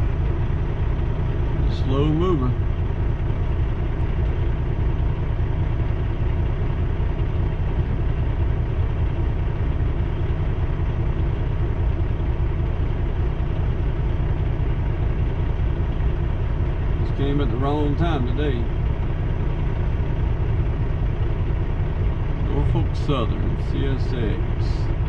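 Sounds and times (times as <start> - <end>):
diesel truck engine idling: 0.0 - 25.0.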